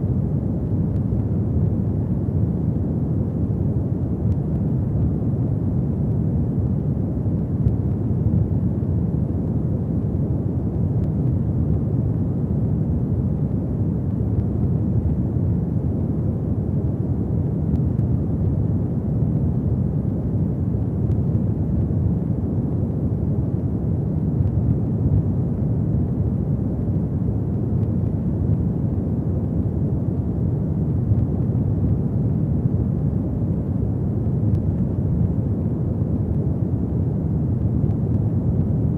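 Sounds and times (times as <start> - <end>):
faint fire crackles: 0.0 - 38.9
low rumble of flames: 0.0 - 38.9.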